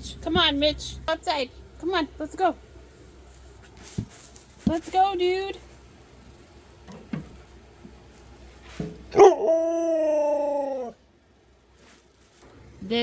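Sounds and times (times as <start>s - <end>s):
husky howling call: 9.1s - 11.0s.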